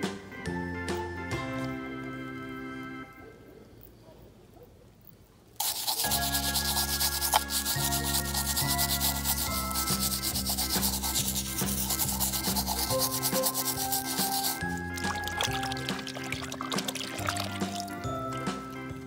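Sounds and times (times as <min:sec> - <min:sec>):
backing tune with bass line: 0:00.0 - 0:03.0, 0:06.1 - 0:19.0
brush scrubbing toy car: 0:05.6 - 0:18.0.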